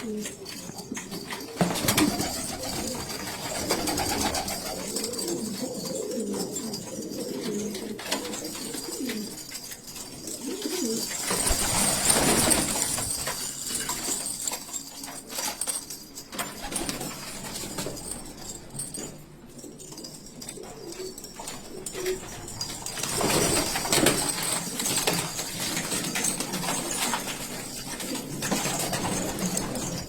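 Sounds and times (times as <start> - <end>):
pigeons cooing: 0.0 - 13.1.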